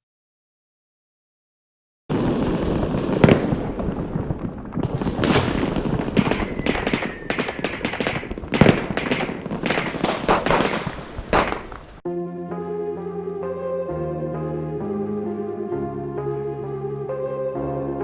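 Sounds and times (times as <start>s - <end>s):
firecrackers banging: 2.1s - 12.0s.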